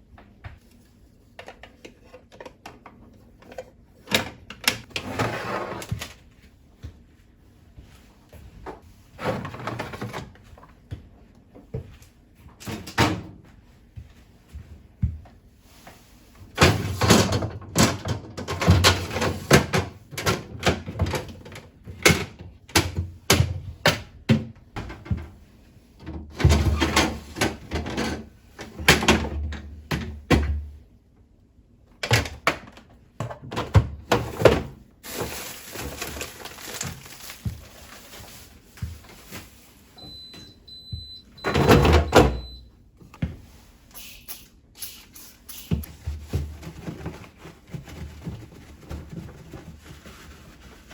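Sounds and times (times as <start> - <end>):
items knocking and clattering: 16.7 - 25.4, 32.0 - 39.4.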